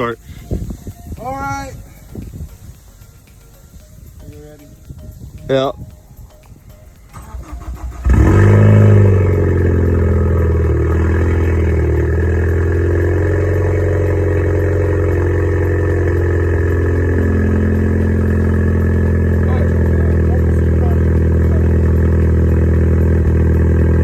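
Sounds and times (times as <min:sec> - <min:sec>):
starter cranking: 0:01.7 - 0:24.0
loud car engine idling: 0:07.2 - 0:24.0.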